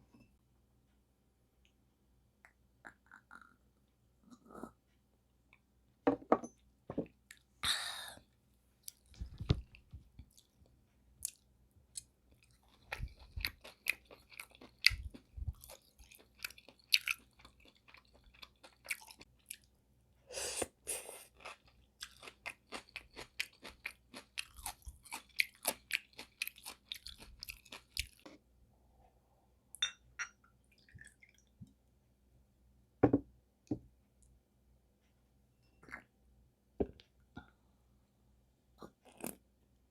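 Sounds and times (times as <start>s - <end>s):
wet chewing and smacking: 8.8s - 19.7s, 21.4s - 28.3s.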